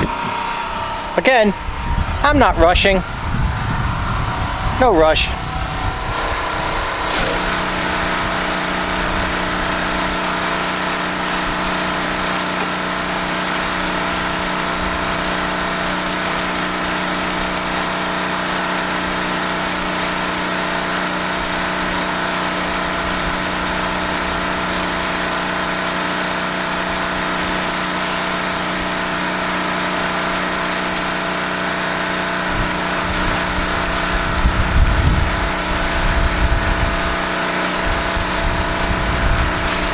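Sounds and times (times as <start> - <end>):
low rumbling bumps: 0.0 - 9.7
pressure washer engine: 0.0 - 39.9.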